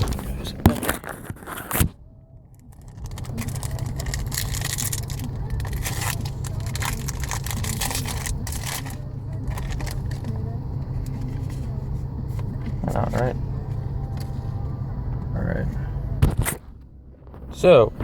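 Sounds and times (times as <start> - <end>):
steady low rumble: 0.0 - 18.0
foil pack crinkling and tearing: 2.7 - 10.3.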